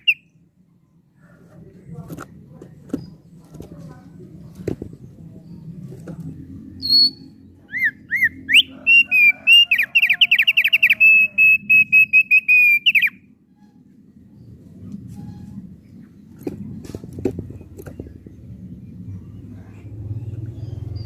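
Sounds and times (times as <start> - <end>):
bird whistling song: 0.0 - 0.3, 6.8 - 13.3.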